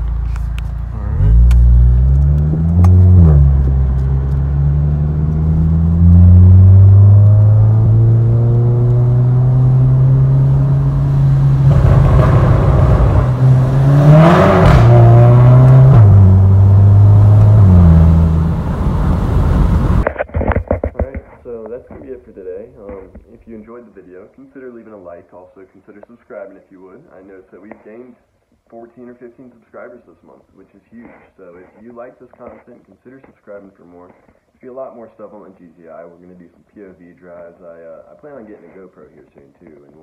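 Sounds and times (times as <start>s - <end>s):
car engine accelerating: 0.0s - 20.1s.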